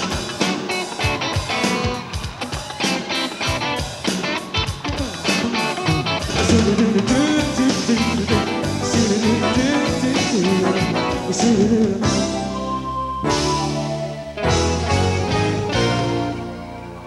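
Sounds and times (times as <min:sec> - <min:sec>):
drums: 0:00.0 - 0:17.0
live rock band playing: 0:00.0 - 0:17.0
pitch-bending melodic line: 0:08.3 - 0:17.0.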